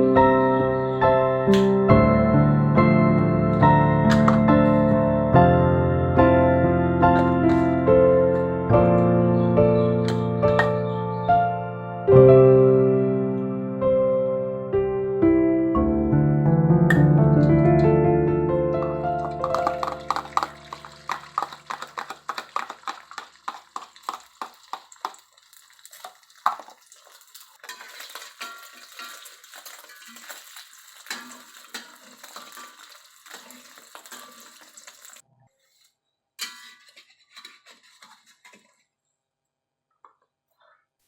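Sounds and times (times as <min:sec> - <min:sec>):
metal utensil clinking on kitchenware: 0:04.1 - 0:04.8, 0:07.2 - 0:07.8, 0:18.8 - 0:35.2, 0:36.4 - 0:38.8.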